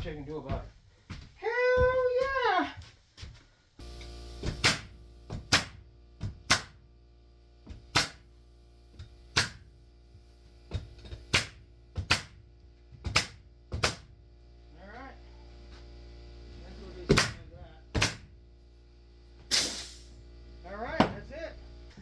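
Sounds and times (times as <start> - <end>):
thuds on wooden subfloor: 4.4 - 6.5.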